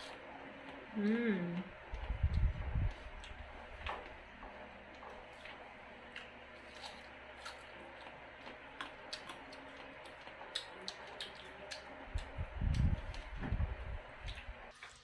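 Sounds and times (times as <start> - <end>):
low thump and rumble: 1.9 - 3.0, 12.3 - 14.0.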